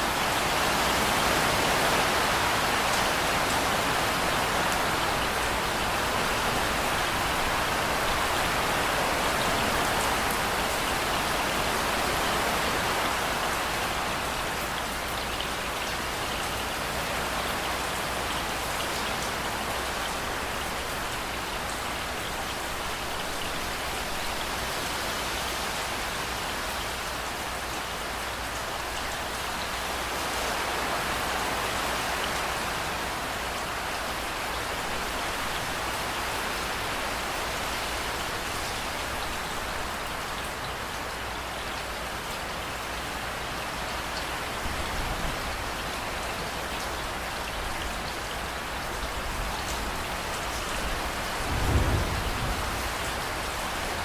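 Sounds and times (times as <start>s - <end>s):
steady rain falling: 0.0s - 54.0s
low rumble of thunder: 51.0s - 54.0s.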